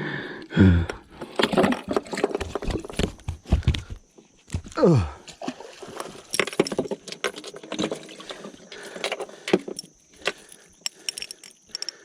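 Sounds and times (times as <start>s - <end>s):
fishing gear clicking and jangling: 6.0s - 12.0s.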